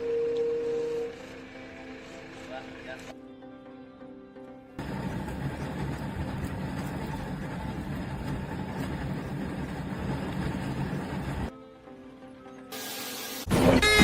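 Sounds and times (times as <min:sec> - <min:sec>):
engine-like mechanical rumble: 0:04.8 - 0:11.5.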